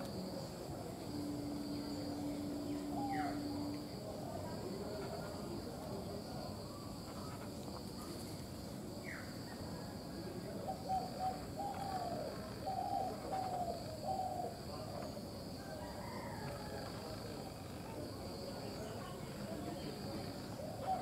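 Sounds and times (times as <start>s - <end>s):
high insect buzz: 0.0s - 5.8s
bird calling short notes: 1.2s - 3.9s.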